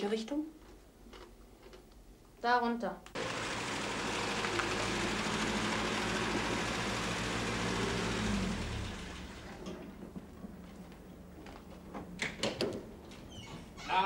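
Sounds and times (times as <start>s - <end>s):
car engine running: 3.2s - 9.9s.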